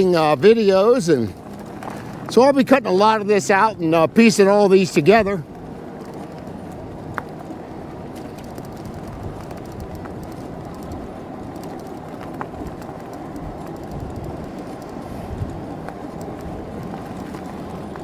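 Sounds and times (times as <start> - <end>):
bike tyres on pavement: 0.0 - 18.0
light clicks and rattles: 5.4 - 18.0.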